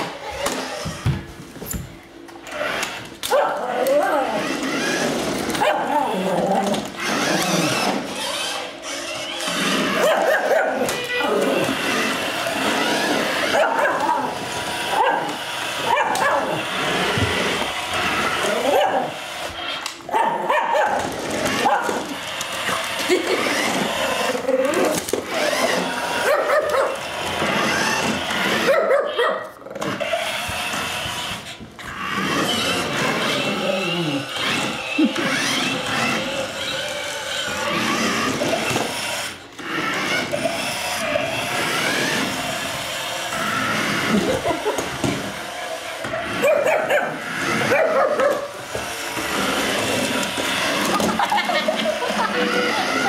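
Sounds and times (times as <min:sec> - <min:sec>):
dog barking and yipping: 0:03.2 - 0:03.9, 0:05.6 - 0:06.2, 0:09.9 - 0:10.9, 0:13.4 - 0:16.7, 0:18.5 - 0:19.2, 0:20.1 - 0:22.0, 0:25.5 - 0:27.1, 0:27.7 - 0:30.3, 0:46.1 - 0:48.6
dog whimpering: 0:32.4 - 0:36.8.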